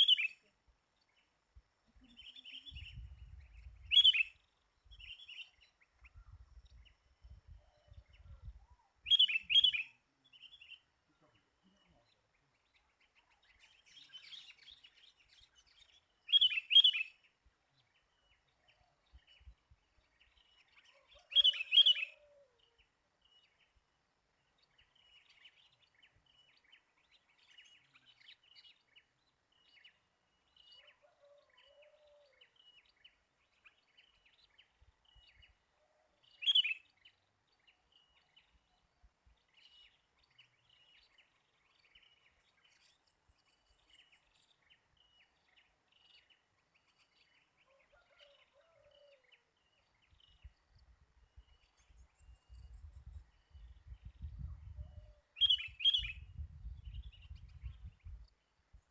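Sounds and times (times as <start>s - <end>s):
loud close bird calling: 21.1s - 22.5s.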